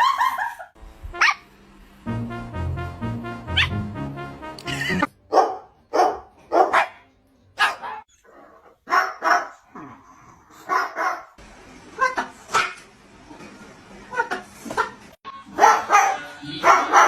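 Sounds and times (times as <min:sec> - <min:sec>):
short dog-like barks: 0:08.9 - 0:09.6.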